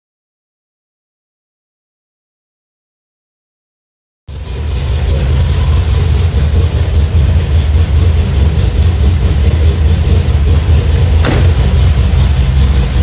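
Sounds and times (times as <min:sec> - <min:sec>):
engine idling loudly: 0:04.3 - 0:13.0.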